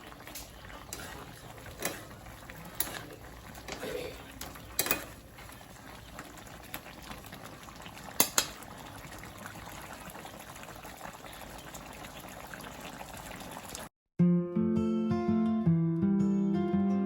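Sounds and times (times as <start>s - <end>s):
food bubbling in a pot: 0.0s - 13.9s.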